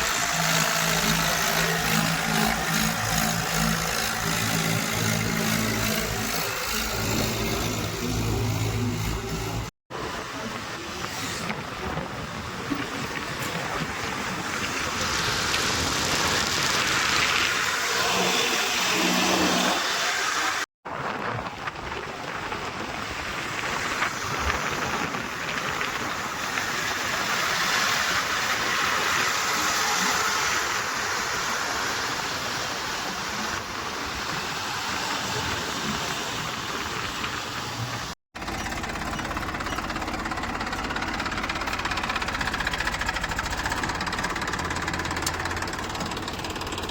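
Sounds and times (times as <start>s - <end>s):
heavy machinery diesel engines running: 0.0s - 20.6s, 34.2s - 46.9s.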